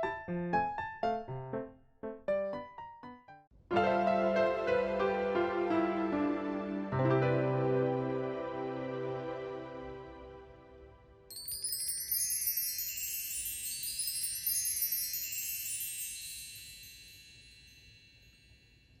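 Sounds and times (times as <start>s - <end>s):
bell-like chime cascade: 11.3s - 19.0s.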